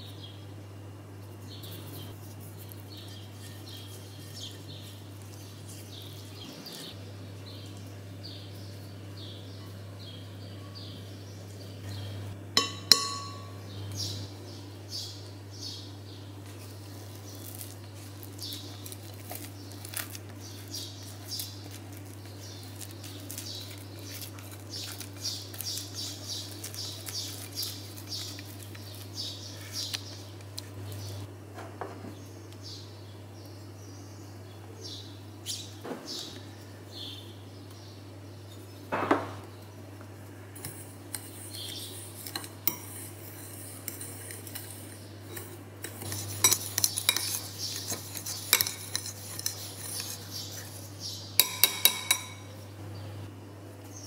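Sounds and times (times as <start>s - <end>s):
low steady hum: 0.0s - 54.0s
fork scratching ceramic bowl: 1.7s - 7.0s, 12.6s - 13.6s, 17.3s - 30.0s, 40.6s - 52.5s
utensil scraping batter from bowl: 2.0s - 7.0s, 40.6s - 52.5s
clinks: 12.6s - 13.6s.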